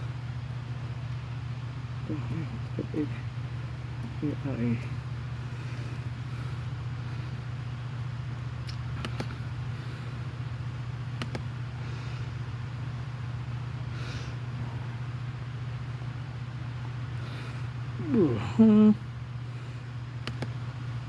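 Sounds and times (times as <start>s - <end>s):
low mechanical hum: 0.0s - 21.0s
sharp clicks: 8.6s - 9.4s, 11.2s - 11.5s, 20.2s - 20.6s.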